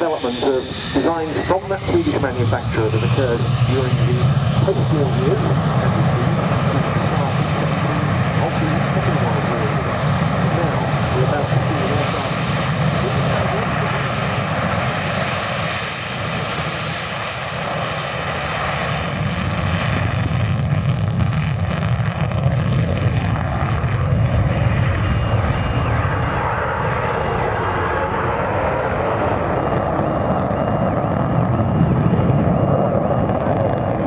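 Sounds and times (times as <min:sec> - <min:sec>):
jet engine rumble: 0:00.0 - 0:34.0.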